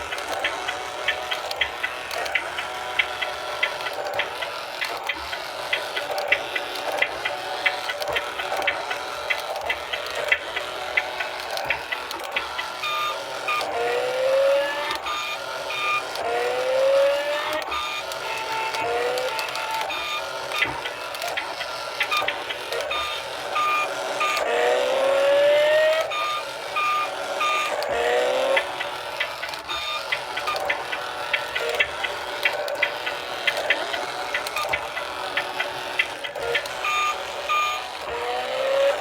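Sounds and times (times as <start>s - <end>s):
clicks: 0.0s - 13.8s, 25.9s - 39.0s
short electronic beeps: 36.8s - 37.9s.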